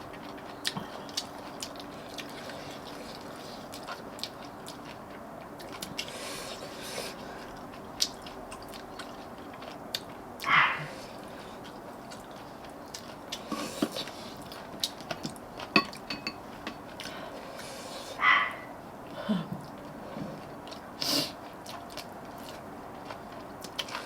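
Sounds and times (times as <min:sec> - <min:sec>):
person chewing: 0:00.0 - 0:18.7, 0:19.5 - 0:24.0
chopsticks and spoons clicking on dishes: 0:15.6 - 0:16.9.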